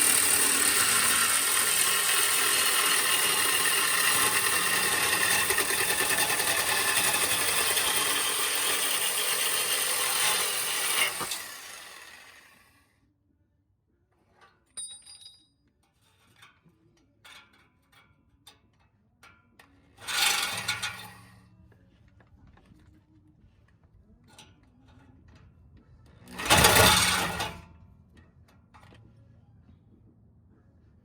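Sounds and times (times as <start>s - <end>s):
angle grinder cutting metal pipe: 0.0s - 12.7s, 20.0s - 21.3s, 26.3s - 27.6s.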